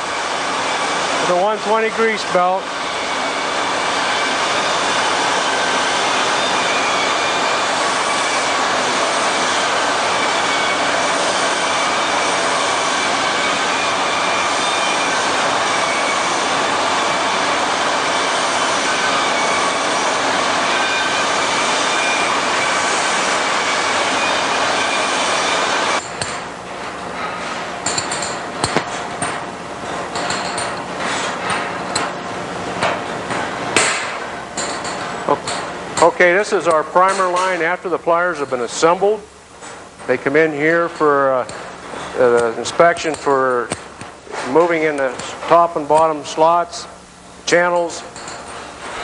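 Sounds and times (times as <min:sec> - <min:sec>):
belt grinder grinding steel: 0:00.0 - 0:26.4
metal clinks: 0:30.1 - 0:30.9, 0:48.1 - 0:48.6.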